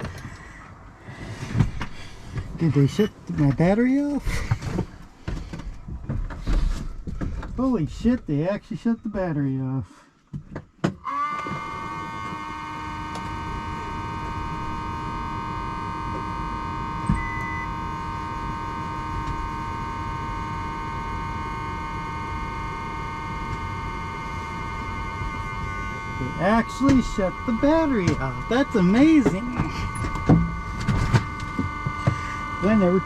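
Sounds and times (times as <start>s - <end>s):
electronic warning buzzer: 11.0s - 33.0s.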